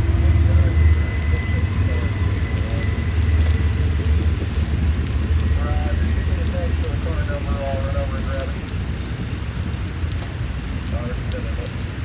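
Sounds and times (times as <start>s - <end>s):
freight train rumbling past: 0.0s - 8.5s
steel wheels rattling on rails: 0.0s - 8.6s.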